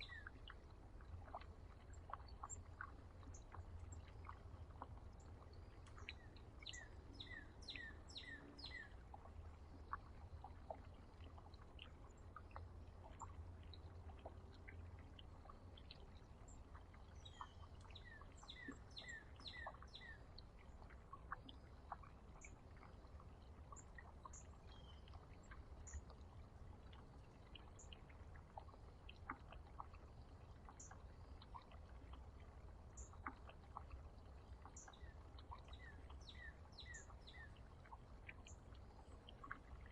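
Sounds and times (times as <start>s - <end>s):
songbirds calling: 0.0s - 9.2s, 11.7s - 22.6s, 23.6s - 26.1s, 34.4s - 39.9s
low steady hum: 0.0s - 39.9s.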